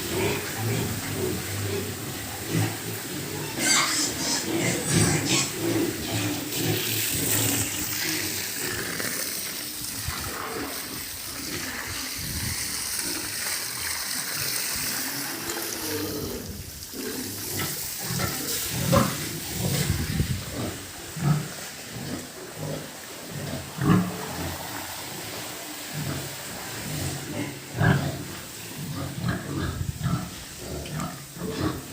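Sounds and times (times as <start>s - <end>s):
pigs grunting and squealing: 0.0s - 31.9s
steady hiss: 0.0s - 31.9s.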